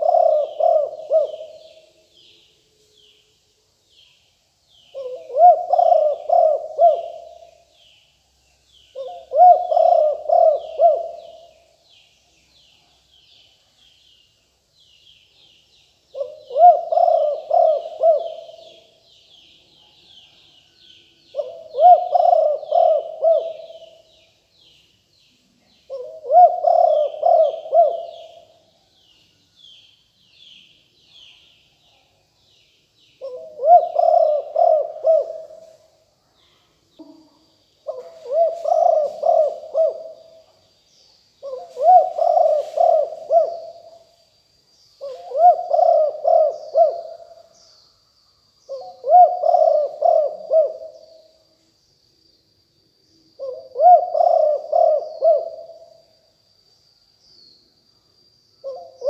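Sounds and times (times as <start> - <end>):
dove cooing: 0.0 - 2.0, 4.9 - 7.7, 8.9 - 11.7, 16.1 - 19.0, 21.3 - 24.1, 25.9 - 28.6, 33.2 - 35.8, 37.0 - 40.5, 41.4 - 44.1, 45.0 - 47.5, 48.7 - 51.3, 53.4 - 56.0, 58.6 - 59.0
faint small-bird chirps: 0.0 - 59.0
thin steady high tone: 0.0 - 59.0.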